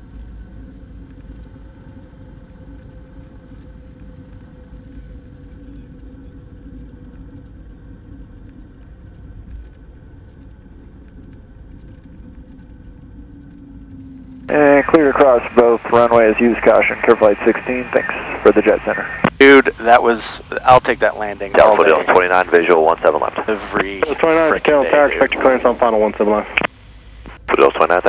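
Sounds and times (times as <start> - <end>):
plane engine droning in cabin: 0.0 - 5.6, 14.1 - 28.0.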